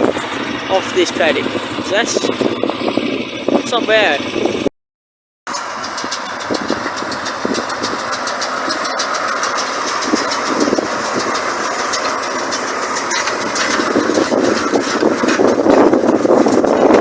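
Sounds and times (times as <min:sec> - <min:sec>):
tractor engine running: 0:00.0 - 0:04.7, 0:05.5 - 0:17.0
baler mechanical rattle: 0:05.5 - 0:17.0.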